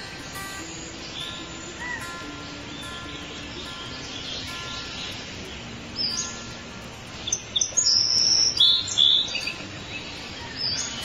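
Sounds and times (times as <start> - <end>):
soft background music: 0.0 - 11.0
songbird chirping: 0.0 - 11.0.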